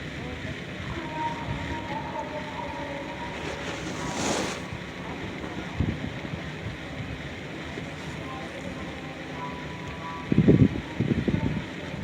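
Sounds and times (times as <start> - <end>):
whoosh: 3.4 - 4.8.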